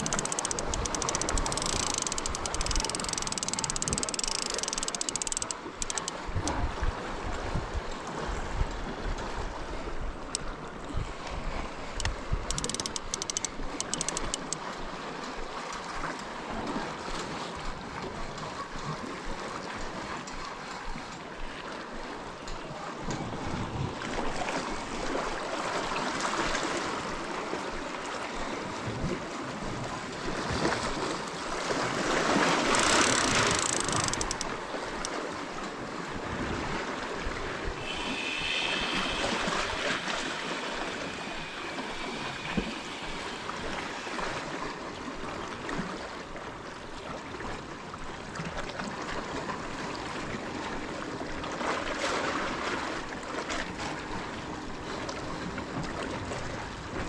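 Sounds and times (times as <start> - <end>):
sea waves washing over rocks: 21.8 - 47.7.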